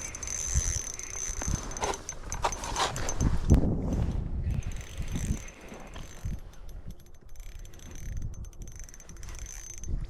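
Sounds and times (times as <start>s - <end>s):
rapid fine reel clicks: 0.0s - 2.5s, 4.6s - 10.0s
fishing reel whirring: 0.0s - 3.4s, 4.4s - 10.0s.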